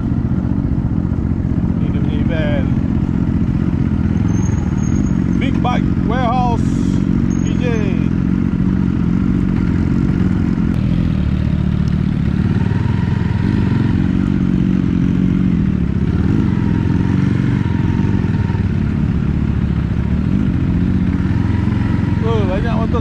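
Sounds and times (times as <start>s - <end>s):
motorcycle engine running at low revs: 0.0s - 23.0s.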